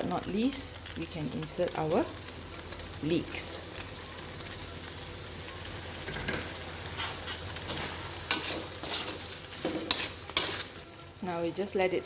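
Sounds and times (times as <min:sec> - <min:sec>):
food sizzling in a wok: 0:00.0 - 0:12.0
spatula scraping pan: 0:06.1 - 0:10.8.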